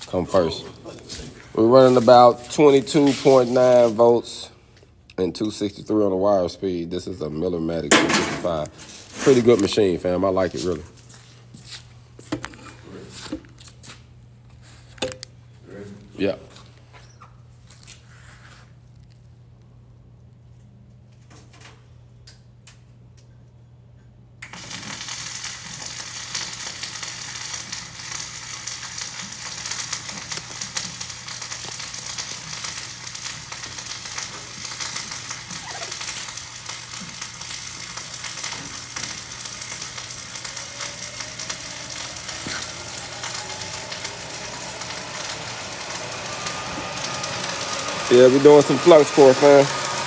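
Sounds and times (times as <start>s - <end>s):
welding arc crackling: 0.0s - 4.4s, 7.7s - 10.9s, 24.4s - 50.0s
steady hum: 24.0s - 50.0s.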